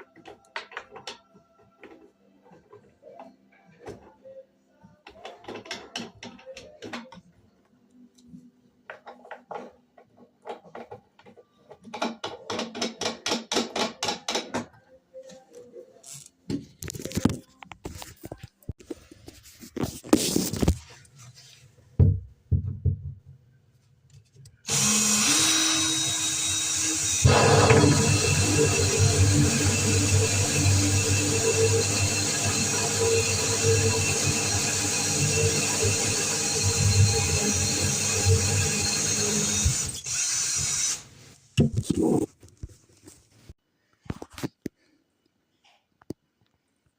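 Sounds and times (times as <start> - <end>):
power drill running: 24.7 - 41.1.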